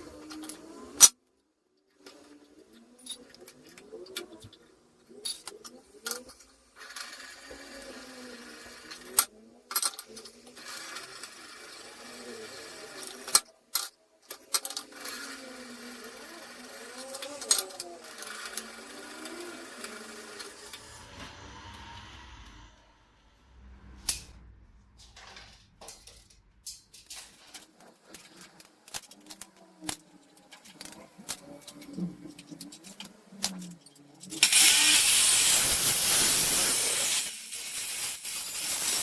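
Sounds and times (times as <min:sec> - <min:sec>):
handheld power tool motor: 0:34.4 - 0:39.0.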